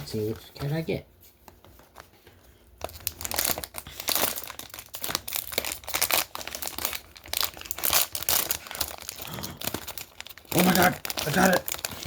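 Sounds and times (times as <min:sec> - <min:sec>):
wrapper crinkling and tearing: 0:02.8 - 0:12.0.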